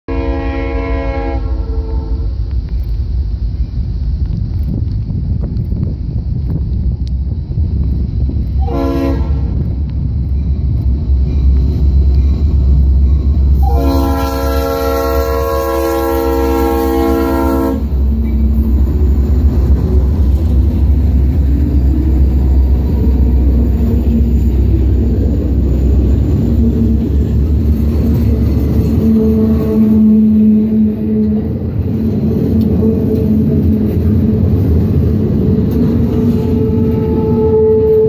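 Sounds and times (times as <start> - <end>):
locomotive horn blasts: 0.1 - 2.4, 8.6 - 9.7, 13.5 - 18.7, 28.8 - 31.7, 36.4 - 38.0
locomotive engine rumble: 0.1 - 38.0.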